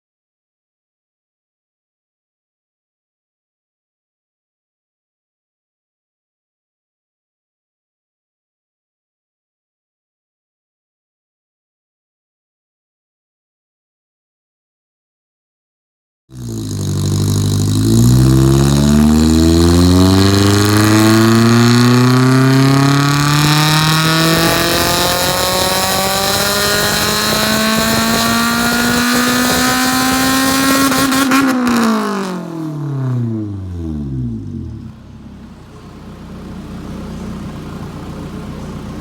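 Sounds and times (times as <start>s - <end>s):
car engine revving at full throttle: 16.3s - 39.0s.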